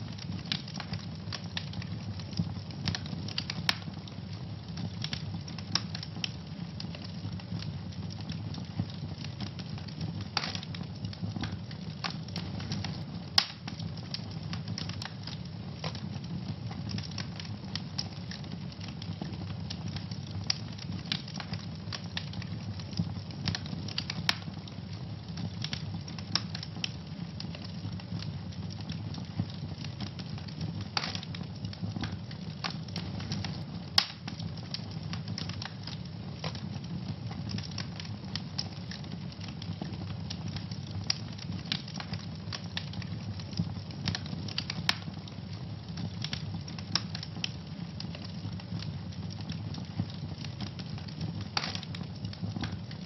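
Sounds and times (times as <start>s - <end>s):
wood fire crackling and popping: 0.0s - 53.0s.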